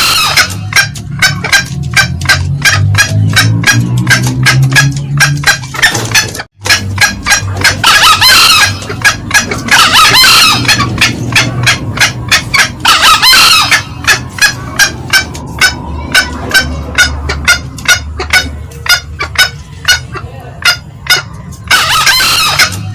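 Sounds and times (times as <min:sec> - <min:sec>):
junglefowl cackling: 0:00.0 - 0:22.9
harsh crows: 0:07.8 - 0:11.8, 0:12.5 - 0:14.2, 0:21.7 - 0:22.9.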